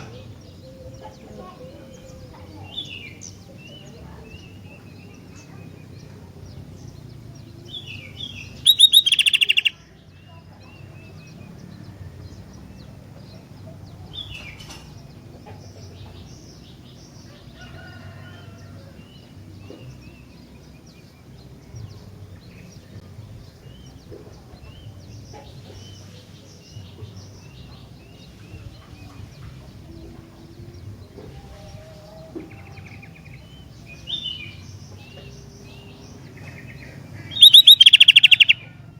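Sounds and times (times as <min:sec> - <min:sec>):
low background noise: 0:00.0 - 0:38.9
bird chirps and whistles: 0:08.6 - 0:09.7, 0:37.4 - 0:38.6
bird rattling call: 0:08.6 - 0:09.8, 0:37.4 - 0:38.6.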